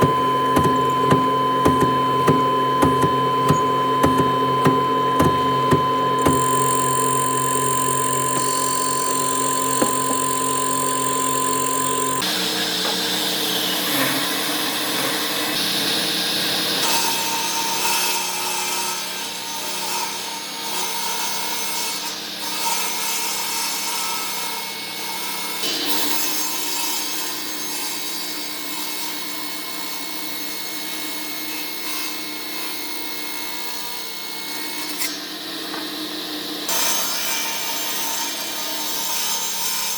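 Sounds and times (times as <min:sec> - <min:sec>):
steady hum: 0:00.0 - 0:12.2
tool rasping wood: 0:00.0 - 0:15.6
power tool motor whining: 0:00.0 - 0:16.9.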